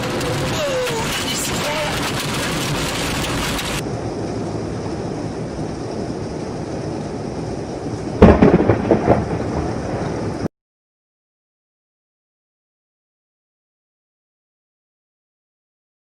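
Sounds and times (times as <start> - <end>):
loud close thunderclap: 0.0 - 5.7, 7.5 - 10.5
steady rain: 0.0 - 10.5.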